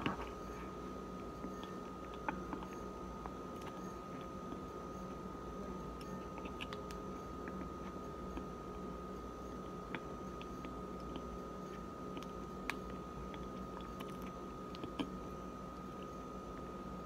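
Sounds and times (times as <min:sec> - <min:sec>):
person chewing crunchy food: 0:00.0 - 0:05.2, 0:06.0 - 0:08.8, 0:09.6 - 0:16.7
faint steady high tone: 0:00.2 - 0:13.1.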